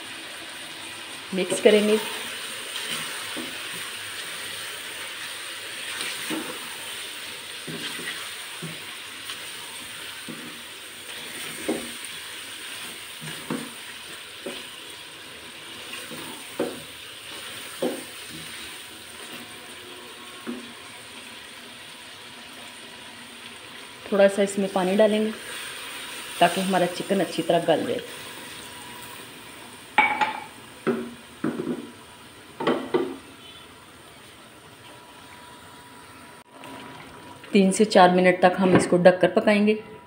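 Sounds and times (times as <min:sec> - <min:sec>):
chicken sizzling in oil: 0:00.0 - 0:32.6
spatula scraping a pan: 0:07.6 - 0:08.8.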